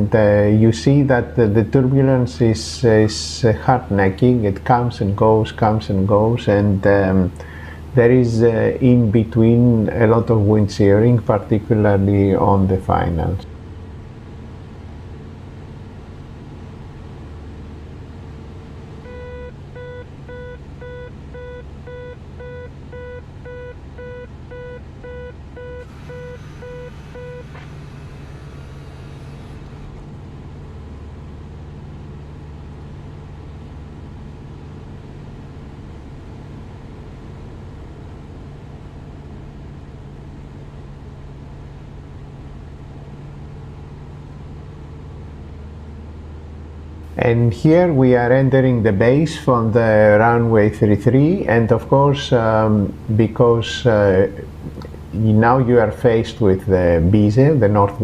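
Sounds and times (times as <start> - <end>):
aircraft engine droning: 0.0 - 58.0
warning tone beeping: 19.0 - 30.0.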